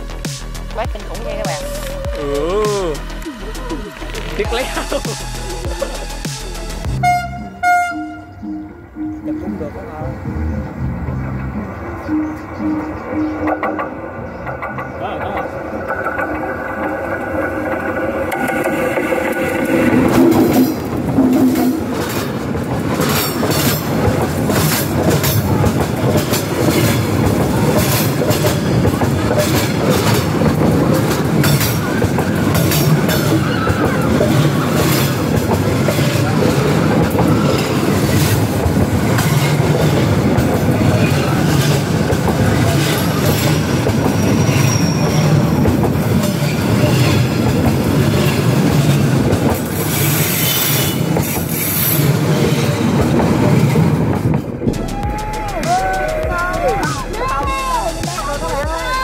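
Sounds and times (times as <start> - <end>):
train wheels rumbling on rails: 0.0 - 8.1, 9.2 - 59.0.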